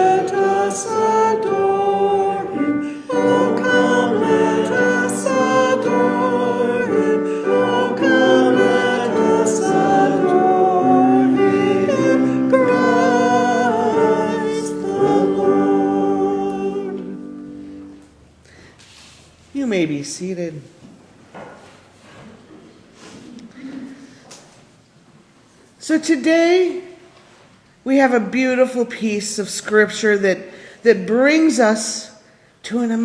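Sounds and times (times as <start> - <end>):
choir singing held chords: 0.0 - 18.1.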